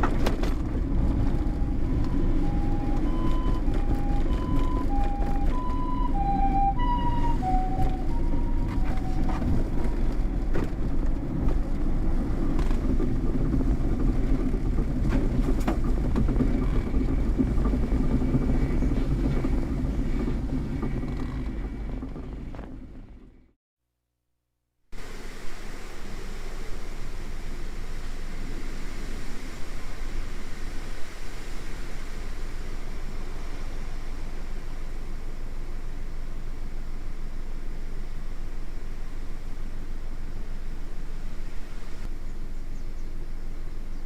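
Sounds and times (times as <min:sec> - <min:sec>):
low rumble: 0:00.0 - 0:23.5.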